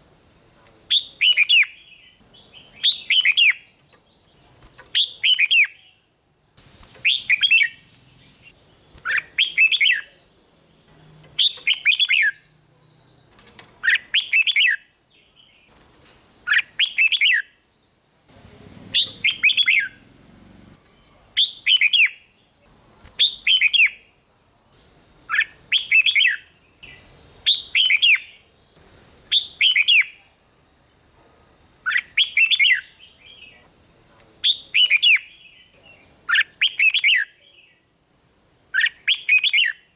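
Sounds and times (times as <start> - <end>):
bulbul singing chattering phrases: 0.6 - 12.5, 18.3 - 24.1.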